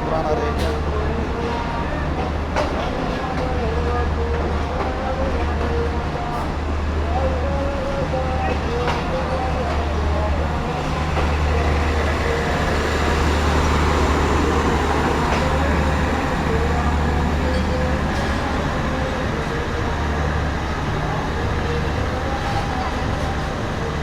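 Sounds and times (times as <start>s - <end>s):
train coaches rumbling on rails: 0.0s - 24.0s.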